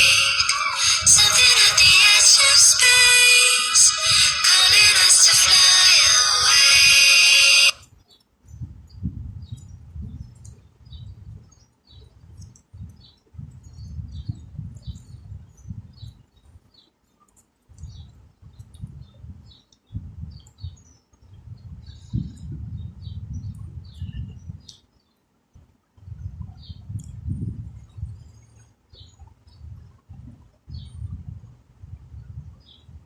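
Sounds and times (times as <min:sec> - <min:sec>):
low rumbling noise: 0:00.0 - 0:07.8
small birds chirping: 0:06.6 - 0:25.3, 0:27.9 - 0:29.7.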